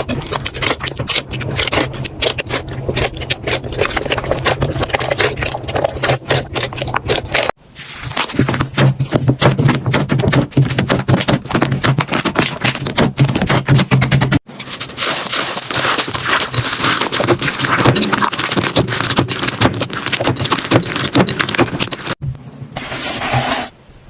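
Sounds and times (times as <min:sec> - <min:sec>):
slime crackling and popping: 0:14.8 - 0:22.2.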